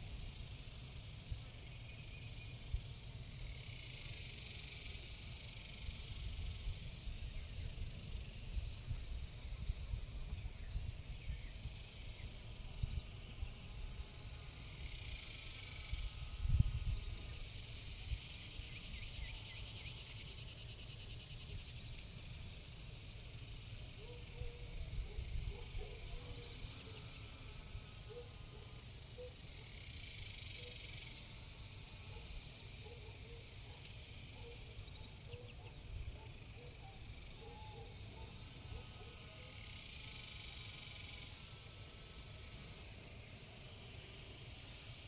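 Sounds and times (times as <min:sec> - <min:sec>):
high insect drone: 0:00.0 - 0:45.0
faint animal or bird calls: 0:34.4 - 0:39.6.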